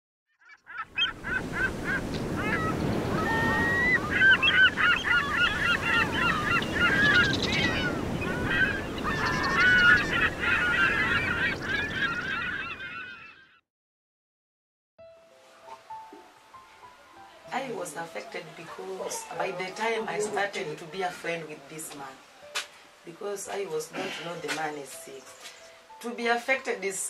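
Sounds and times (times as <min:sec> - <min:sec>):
water birds calling: 0:00.3 - 0:13.6, 0:15.4 - 0:26.4
waves washing: 0:01.1 - 0:12.2.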